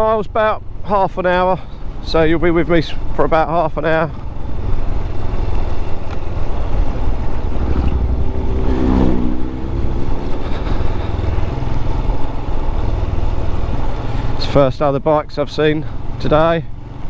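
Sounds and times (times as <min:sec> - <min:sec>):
motorcycle engine running: 0:00.0 - 0:17.0
motorbikes passing by: 0:00.6 - 0:17.0
wind noise: 0:04.5 - 0:14.4.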